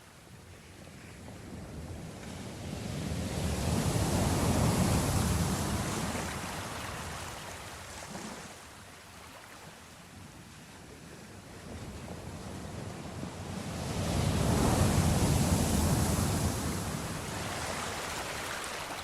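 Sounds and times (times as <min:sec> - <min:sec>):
ocean wave breaking: 0:13.6 - 0:19.0.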